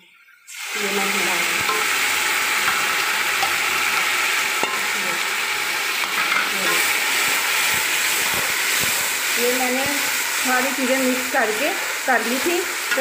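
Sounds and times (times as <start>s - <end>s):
food sizzling in hot oil: 0.4s - 13.0s
spoon stirring in pot: 6.0s - 10.4s.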